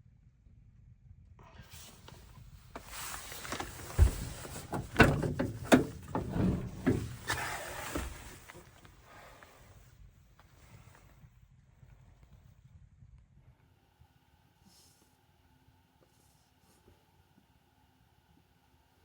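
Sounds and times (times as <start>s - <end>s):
rustling and shuffling: 1.8s - 11.3s.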